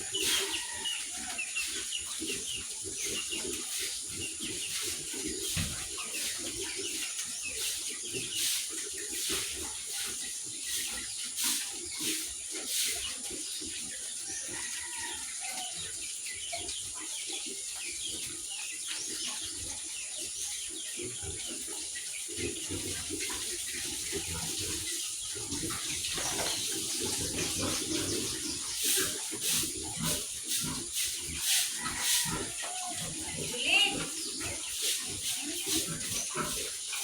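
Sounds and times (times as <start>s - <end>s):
birds chirping: 0.0s - 37.0s
running water hissing: 23.3s - 37.0s.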